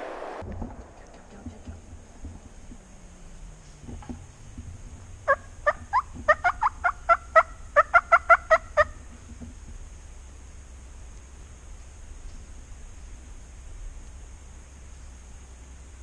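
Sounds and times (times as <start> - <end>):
turkey yelping: 4.2 - 9.1.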